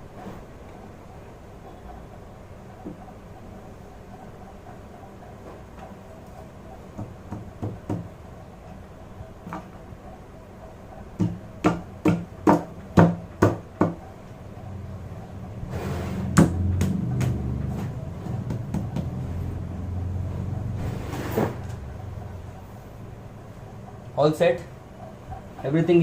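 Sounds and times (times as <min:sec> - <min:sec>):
low rumbling noise: 0:14.4 - 0:24.2.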